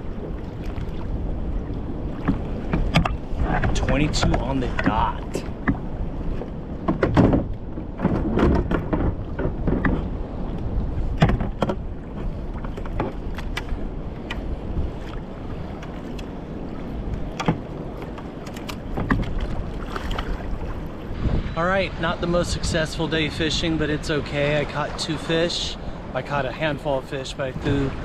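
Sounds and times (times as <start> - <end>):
water against kayak hull: 0.0 - 28.0
wind rumbling on microphone: 0.0 - 28.0
knocks and clicks: 6.8 - 10.0, 11.2 - 11.8.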